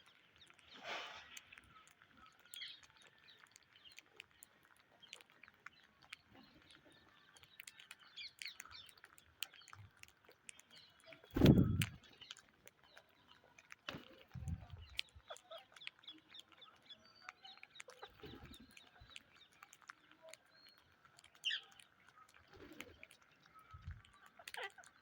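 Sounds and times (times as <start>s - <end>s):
parakeets clicking softly: 0.0s - 25.0s
loud deep thump: 11.4s - 11.9s
parakeet chirps: 24.2s - 25.0s.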